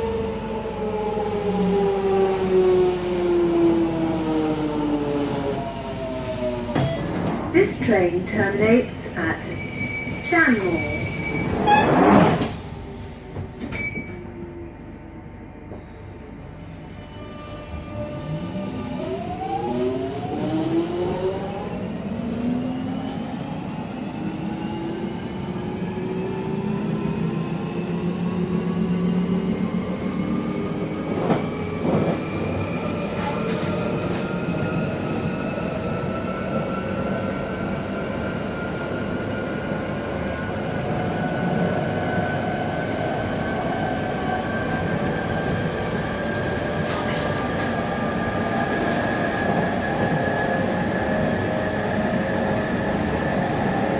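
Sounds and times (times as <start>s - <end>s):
wheels rumbling on rail: 10.2s - 14.1s, 24.1s - 38.0s, 40.3s - 53.9s.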